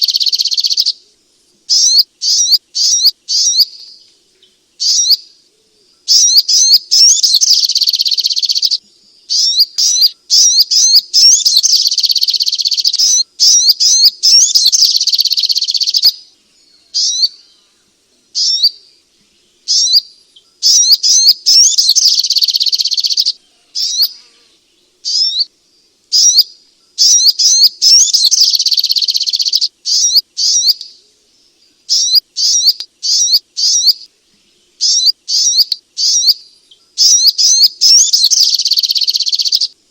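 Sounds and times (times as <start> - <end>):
bird singing high sweeping notes: 34.8 - 39.7.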